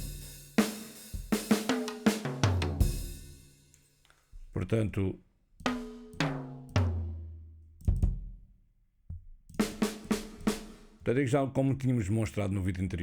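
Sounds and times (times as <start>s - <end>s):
tom drum strikes: 0.0s - 3.4s.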